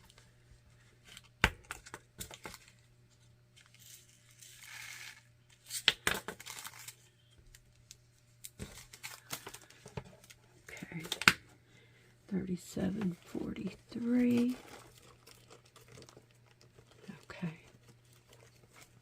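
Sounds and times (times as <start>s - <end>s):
plastic crinkling: 12.9s - 19.0s
plastic rustle: 12.9s - 19.0s.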